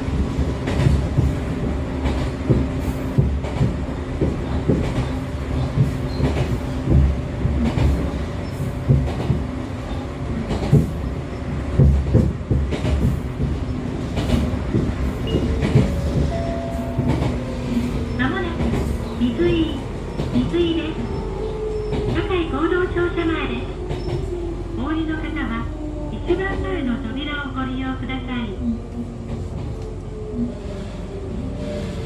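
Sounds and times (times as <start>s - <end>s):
train running rumble: 0.0s - 32.0s
wheels clacking over rail joints: 11.7s - 20.6s.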